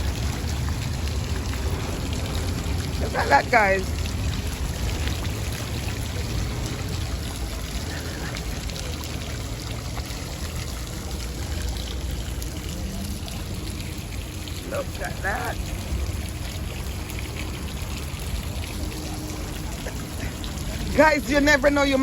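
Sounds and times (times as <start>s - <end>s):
low rumble: 0.0s - 14.6s
water running: 0.0s - 22.0s.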